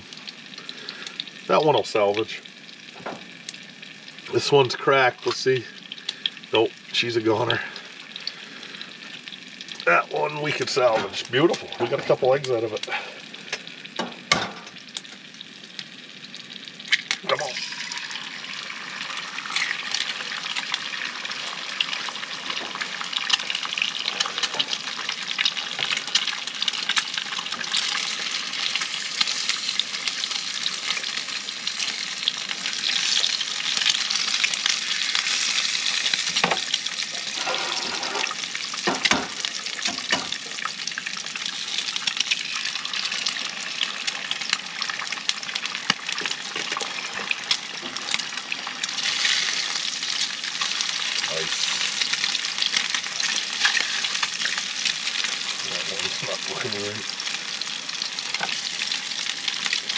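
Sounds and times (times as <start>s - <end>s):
eggs sizzling in a pan: 0.0s - 59.9s
knocks against a pan: 14.0s - 14.7s.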